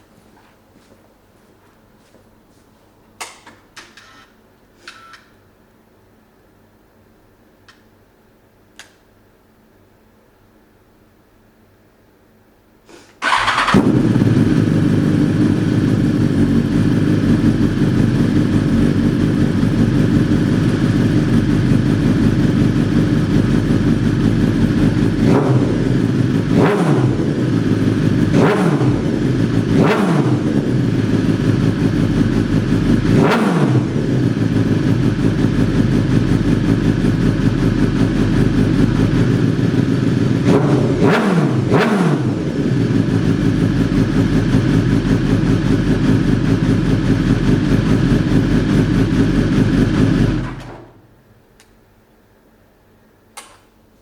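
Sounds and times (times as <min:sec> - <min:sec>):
motorcycle throttle blips: 0:13.2 - 0:51.0
motorcycle engine idling: 0:13.2 - 0:51.1.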